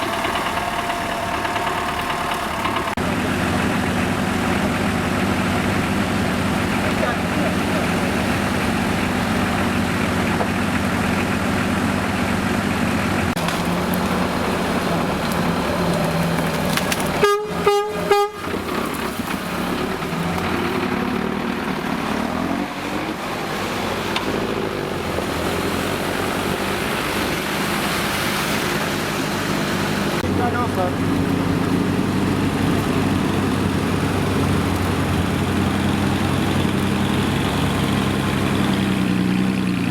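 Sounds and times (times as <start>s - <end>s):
vehicle engine running: 0.0s - 39.9s
vehicle horn toots: 17.1s - 18.7s.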